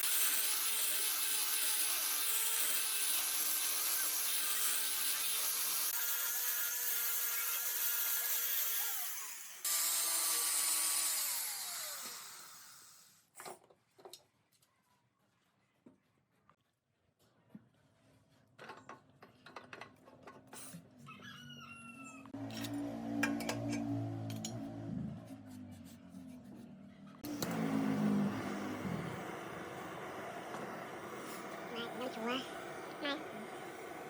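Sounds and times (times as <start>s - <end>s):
wood lathe motor hum: 27.2s - 34.0s
hissing rub on spinning wood: 27.6s - 34.0s.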